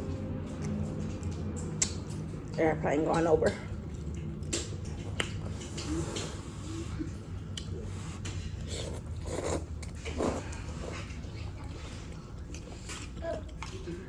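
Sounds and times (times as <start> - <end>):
airplane rumbling overhead: 0.0 - 14.0
person chewing and crunching food: 0.0 - 14.0
mouth clicks and smacks: 0.6 - 2.5, 3.8 - 6.4.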